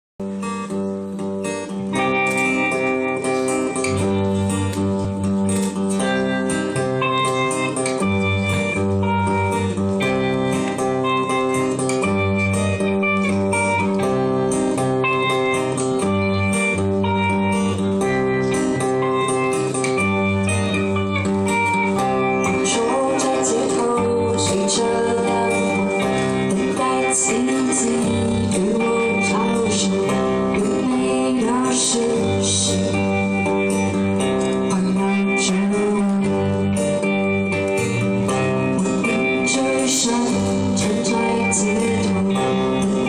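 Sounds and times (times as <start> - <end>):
guitar-led band playing: 0.2 - 43.0
person singing: 18.3 - 43.0.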